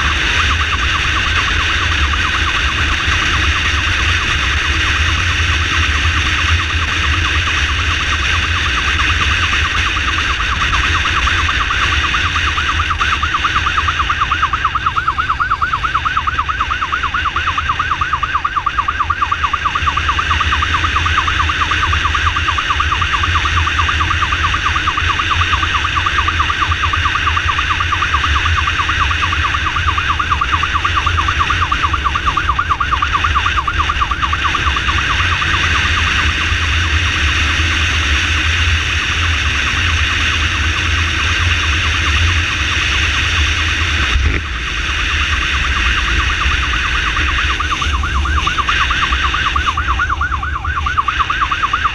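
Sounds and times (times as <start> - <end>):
electronic siren warbling: 0.0 - 51.9
motorcycle rumble: 0.0 - 51.9.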